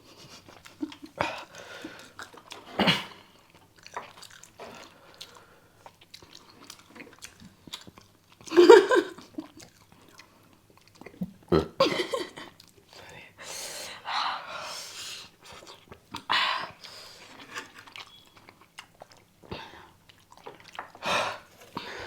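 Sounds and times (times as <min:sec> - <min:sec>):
people chewing noodles: 0:00.0 - 0:22.0.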